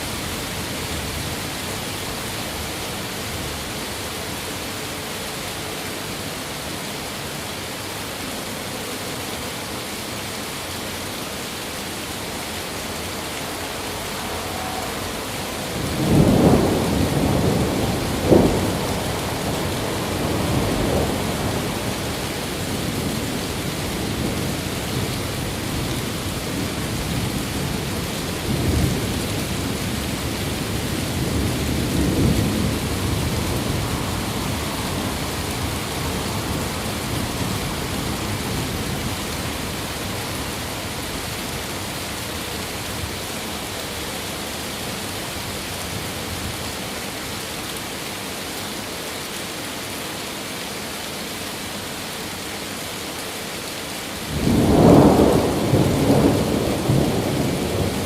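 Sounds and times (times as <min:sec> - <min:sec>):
steady rain: 0:00.0 - 0:58.0
thunder rumbling: 0:12.6 - 0:41.8, 0:54.3 - 0:58.0
thunder crack: 0:14.6 - 0:21.9, 0:54.3 - 0:58.0.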